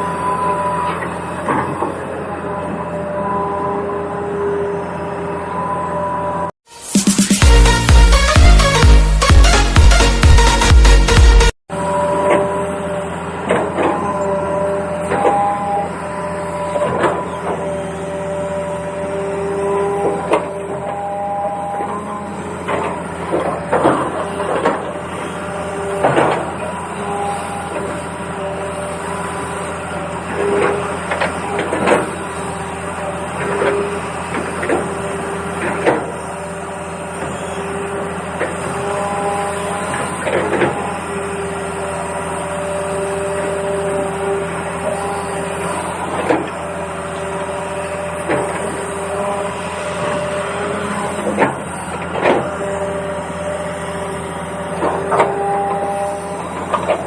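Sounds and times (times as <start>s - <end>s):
toy electric motors whining: 11.9s - 57.0s.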